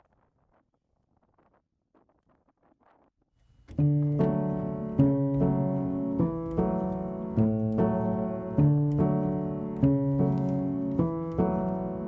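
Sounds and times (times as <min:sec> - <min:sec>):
piano playing gentle chords: 0:03.7 - 0:12.0.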